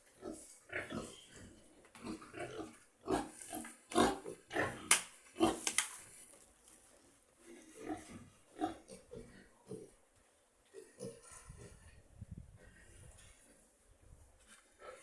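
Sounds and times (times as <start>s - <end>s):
pigs grunting: 0.2s - 5.6s, 7.5s - 10.0s, 10.7s - 11.9s.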